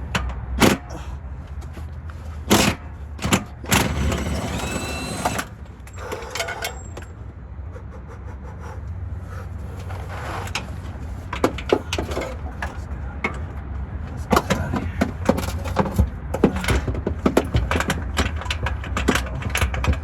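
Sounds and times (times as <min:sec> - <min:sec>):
hand tools knocking on metal: 0:14.3 - 0:20.0.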